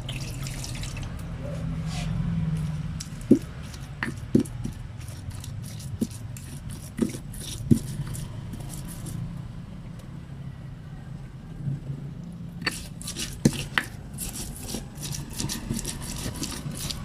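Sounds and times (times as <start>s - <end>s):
pestle grinding in stone mortar: 2.0s - 9.3s, 12.6s - 17.0s
pestle knocking on mortar: 3.0s - 8.9s, 12.6s - 17.0s.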